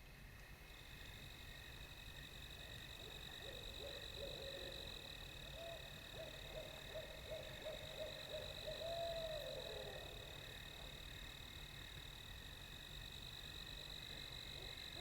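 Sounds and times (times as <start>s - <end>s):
owl hooting: 3.4s - 4.9s, 5.5s - 10.3s.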